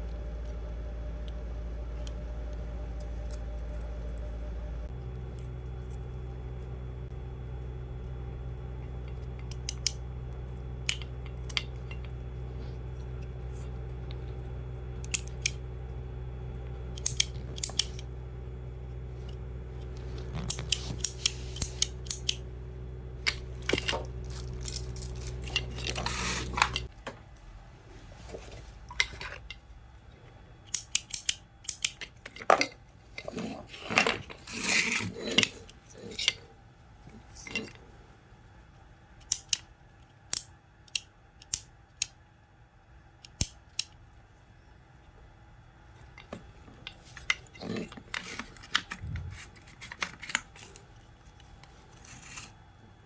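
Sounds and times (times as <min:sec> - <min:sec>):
low mechanical hum: 0:00.0 - 0:53.0
metal parts and tools clattering: 0:23.6 - 0:26.9.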